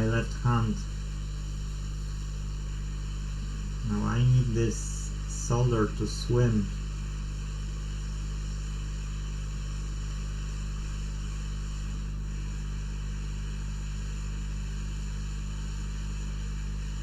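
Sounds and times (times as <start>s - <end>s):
hot air station blowing: 0.0s - 13.3s
mains hum: 0.0s - 17.0s.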